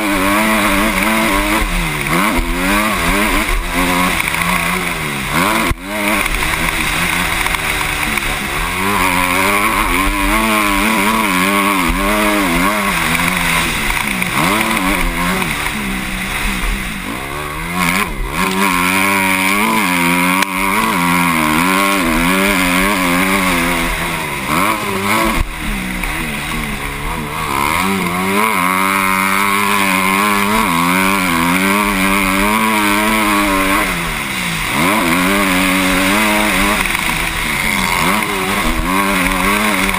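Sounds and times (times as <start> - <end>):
motocross engine revving: 0.0 - 39.9.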